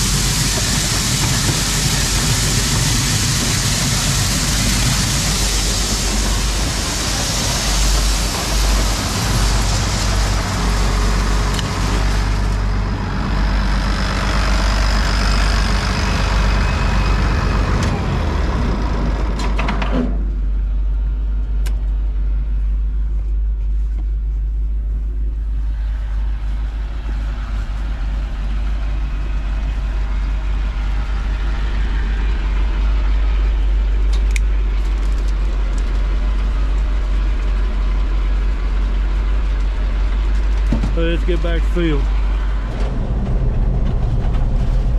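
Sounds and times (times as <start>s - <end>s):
grain unloading rush: 0.0s - 20.5s, 25.1s - 44.9s
combine engine drone: 0.0s - 44.9s.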